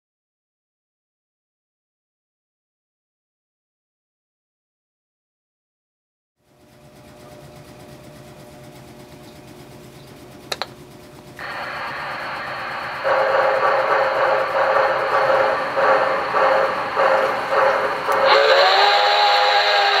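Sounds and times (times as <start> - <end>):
unevenly pulsing steam noise: 11.2 - 20.0
steam hiss with high tone: 11.4 - 20.0.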